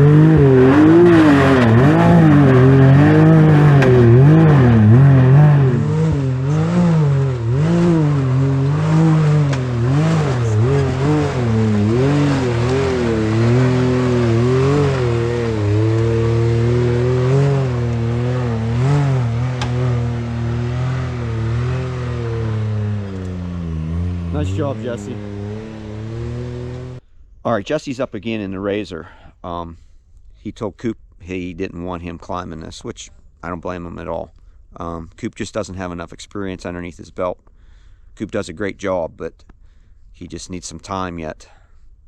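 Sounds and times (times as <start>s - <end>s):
turbocharged engine revving: 0.0s - 27.0s.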